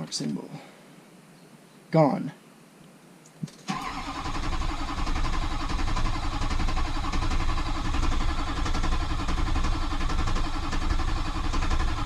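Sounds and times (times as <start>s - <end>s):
diesel engine cranking: 3.6s - 12.0s.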